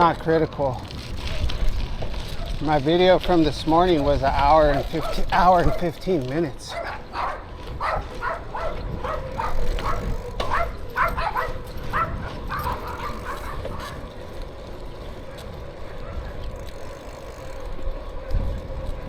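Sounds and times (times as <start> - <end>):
small dog yapping: 6.7 - 14.0.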